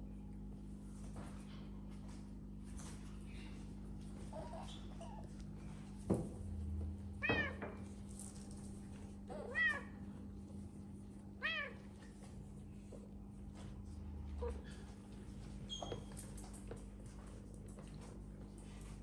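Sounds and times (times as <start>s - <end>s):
cat meowing: 9.3s - 10.0s, 11.4s - 11.8s.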